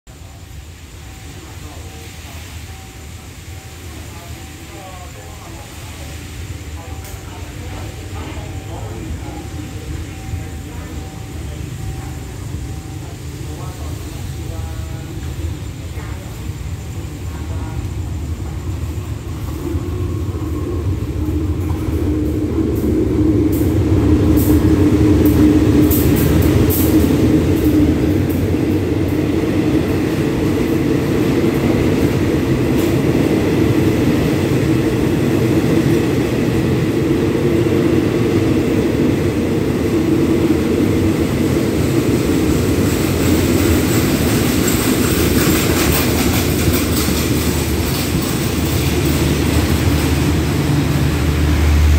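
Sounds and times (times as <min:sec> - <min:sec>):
diesel train rumbling: 0:00.1 - 0:51.9
train sharp clicks: 0:21.2 - 0:34.6, 0:42.2 - 0:51.9.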